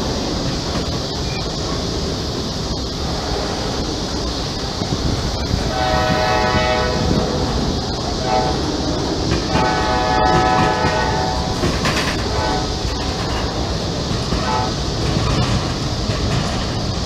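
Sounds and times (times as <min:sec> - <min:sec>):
freight cars rumbling and clattering: 0:00.0 - 0:17.0
train horn blasts: 0:05.6 - 0:13.6, 0:14.3 - 0:14.8.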